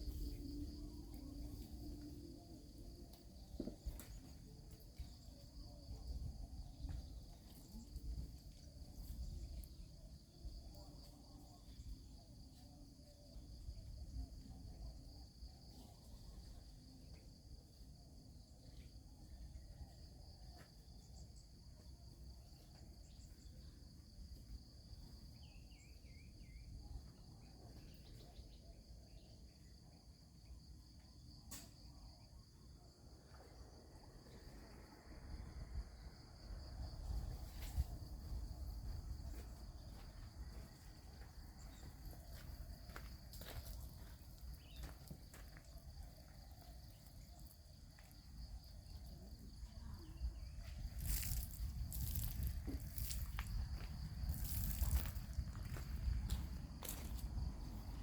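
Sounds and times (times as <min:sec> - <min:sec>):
insects chirping: 0:00.0 - 0:58.0.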